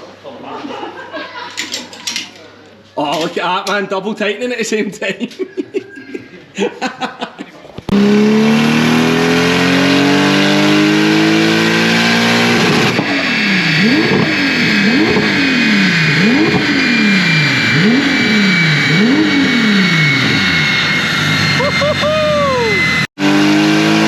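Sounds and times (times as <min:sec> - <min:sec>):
car engine revving on dyno: 0:07.9 - 0:24.0
steady high whine: 0:12.4 - 0:23.1.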